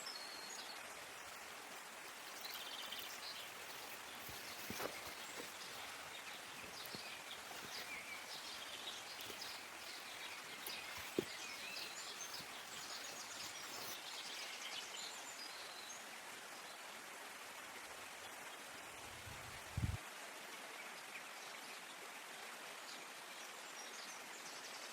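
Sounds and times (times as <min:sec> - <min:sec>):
small birds chirping: 0:00.0 - 0:16.1.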